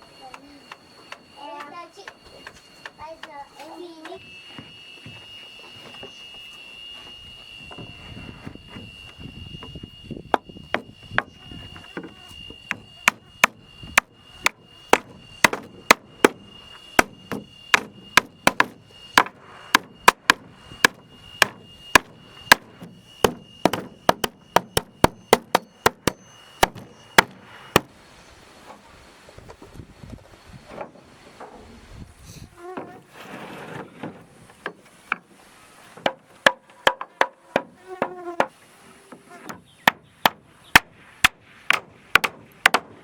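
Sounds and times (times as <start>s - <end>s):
hammer striking wooden planks: 10.3s - 28.0s, 35.9s - 38.6s, 39.4s - 43.0s.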